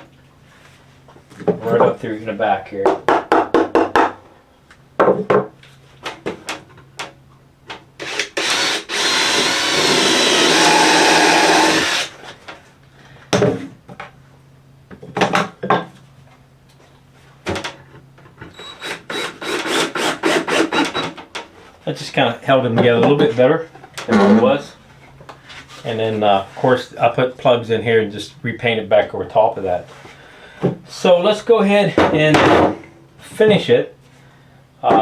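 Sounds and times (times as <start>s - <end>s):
power drill driving screw into wood: 8.0s - 12.2s, 18.5s - 21.2s.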